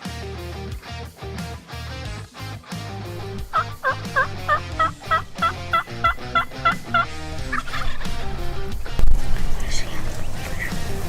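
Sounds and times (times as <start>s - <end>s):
background music: 0.0s - 11.0s
turkey yelps: 3.2s - 9.0s.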